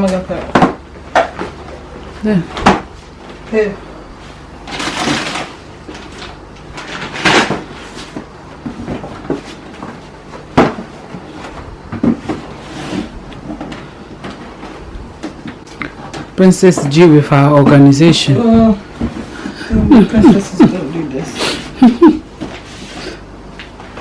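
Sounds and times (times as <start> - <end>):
plastic packaging rustling: 4.4 - 15.7
containers and fridge drawers knocking: 6.8 - 12.6.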